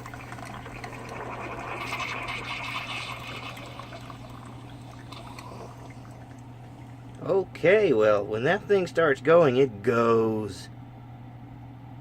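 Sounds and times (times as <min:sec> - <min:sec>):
coffee pouring into a cup: 0:00.0 - 0:07.2
steady low hum: 0:00.0 - 0:12.0.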